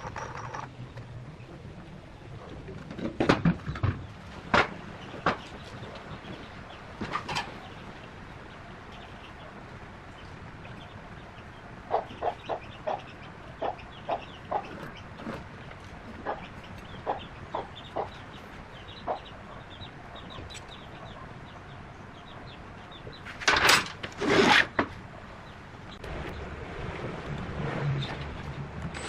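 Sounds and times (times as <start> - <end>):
birds clucking: 2.4 - 26.9
harsh bird calls: 4.8 - 23.4.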